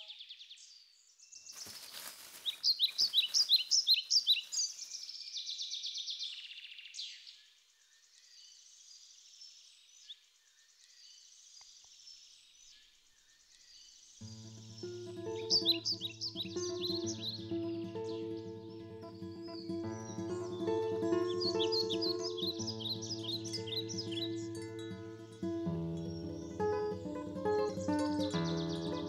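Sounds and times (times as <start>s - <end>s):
songbird chirping: 0.0s - 29.0s
bird trill: 1.6s - 7.2s, 14.2s - 29.0s.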